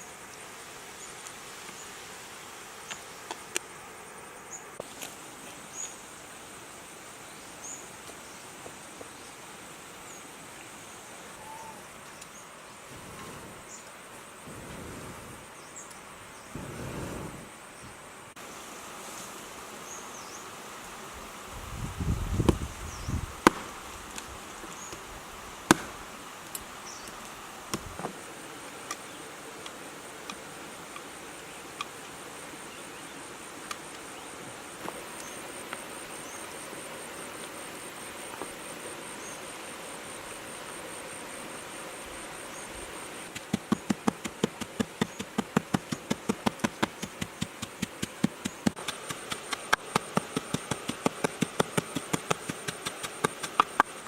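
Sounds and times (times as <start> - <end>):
insects buzzing: 0.0 - 54.0
knife chopping on wooden board: 25.7 - 26.0.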